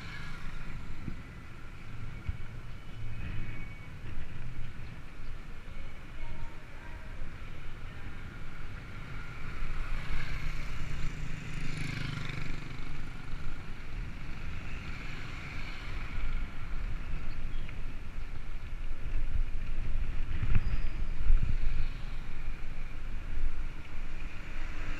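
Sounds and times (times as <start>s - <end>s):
road noise: 0.0s - 24.9s
vehicle passing: 8.2s - 16.8s
wind buffeting microphone: 16.3s - 24.1s.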